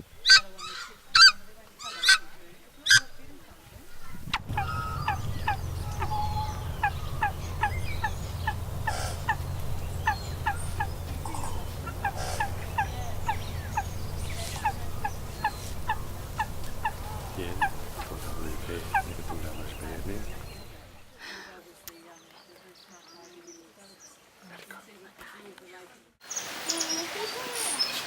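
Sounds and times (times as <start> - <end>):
steady low rumble: 3.2 - 21.1.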